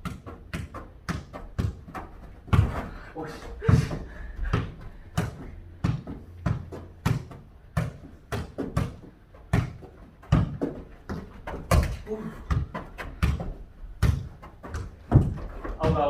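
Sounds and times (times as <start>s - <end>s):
ball kicked and bouncing: 0.0s - 16.0s.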